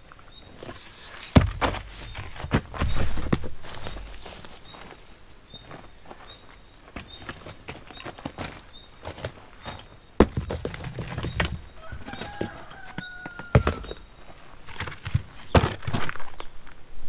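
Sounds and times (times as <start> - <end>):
heavy thuds: 1.3 - 4.5, 10.2 - 16.2.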